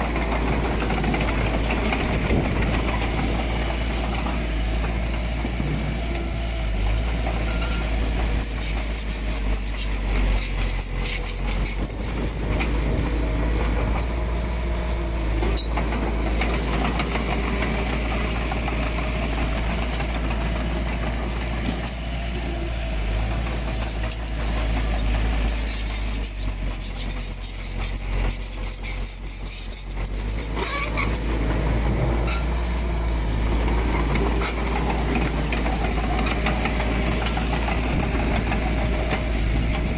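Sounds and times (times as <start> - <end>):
diesel engine running: 0.0 - 39.9
metallic squeaking and clattering: 25.5 - 31.5.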